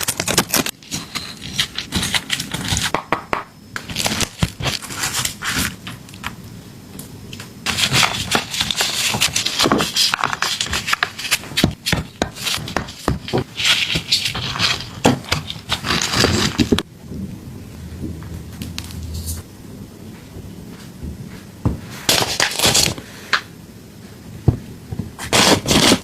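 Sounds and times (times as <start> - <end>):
food preparation scraping: 0.0 - 3.0, 3.8 - 6.3, 7.7 - 16.9, 18.0 - 19.5, 25.2 - 26.0.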